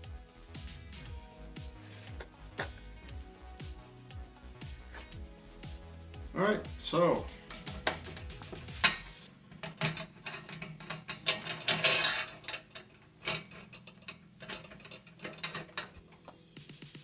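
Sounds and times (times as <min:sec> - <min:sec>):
metallic clicks and clinks: 0:07.4 - 0:16.4.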